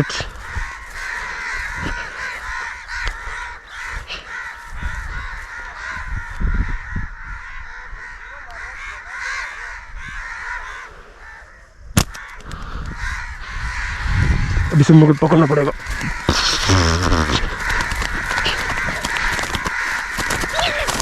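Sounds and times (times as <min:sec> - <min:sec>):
birds chattering chorus: 0:00.0 - 0:21.0
sharp crack: 0:12.0 - 0:12.7.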